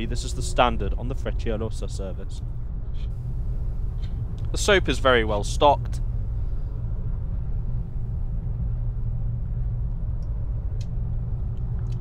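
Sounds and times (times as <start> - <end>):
train low rumble: 0.0 - 12.0
faint clicks: 9.8 - 12.0.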